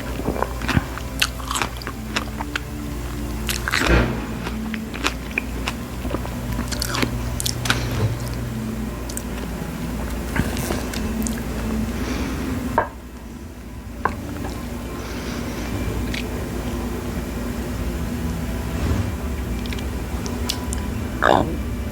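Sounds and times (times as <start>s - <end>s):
steady low hum: 0.0s - 21.9s
biting and chewing strawberries: 0.1s - 2.7s.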